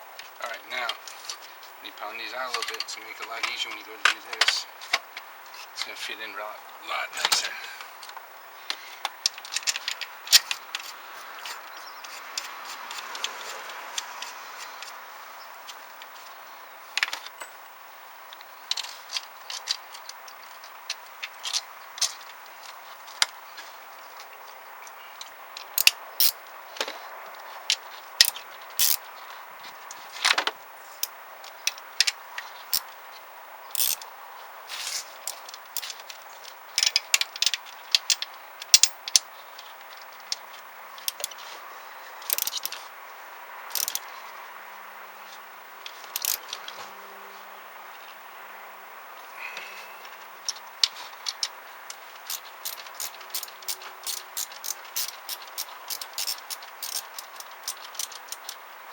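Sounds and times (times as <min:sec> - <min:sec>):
hand tools clinking on metal: 0:00.5 - 0:05.0, 0:06.9 - 0:07.8, 0:42.3 - 0:42.8, 0:52.2 - 0:58.6.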